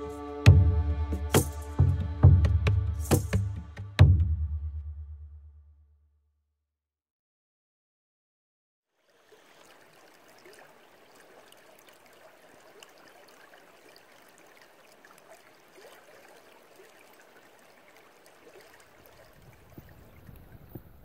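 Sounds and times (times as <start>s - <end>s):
trickling water: 8.9s - 21.0s.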